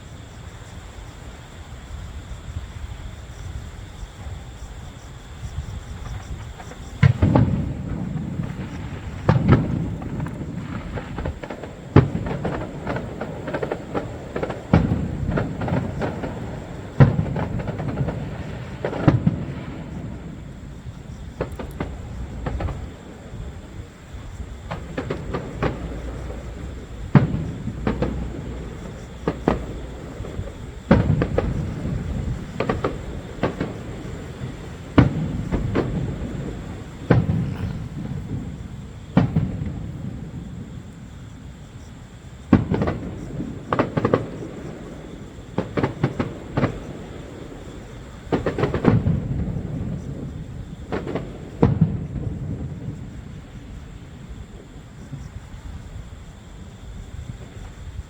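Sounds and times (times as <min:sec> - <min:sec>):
fireworks booming: 0:00.0 - 0:58.0.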